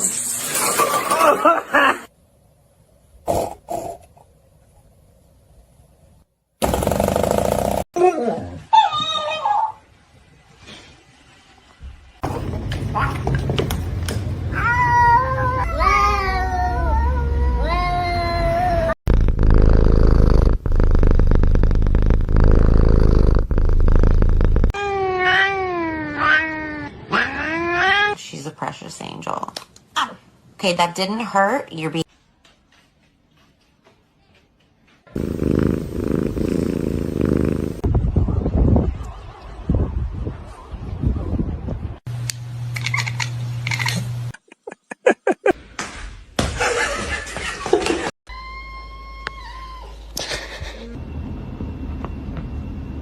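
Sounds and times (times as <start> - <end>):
person laughing: 1.1 - 2.1, 44.4 - 45.6, 50.1 - 51.0
cat purring: 19.1 - 24.7, 35.2 - 37.8.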